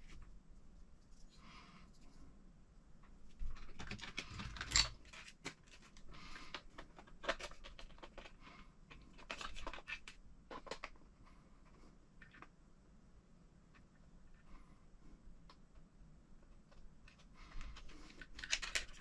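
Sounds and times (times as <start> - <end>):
small parts and tools clattering: 3.4 - 11.0, 16.7 - 19.0.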